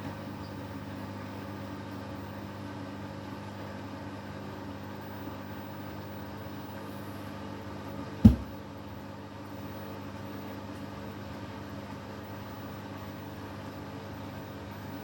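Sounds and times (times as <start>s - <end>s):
loud thump: 8.3s - 8.6s
washing machine motor hum: 8.3s - 8.6s.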